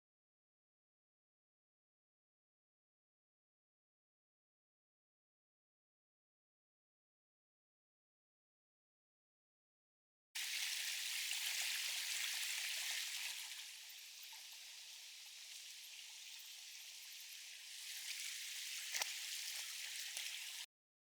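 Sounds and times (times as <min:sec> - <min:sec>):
stream water rushing: 0:10.4 - 0:20.6.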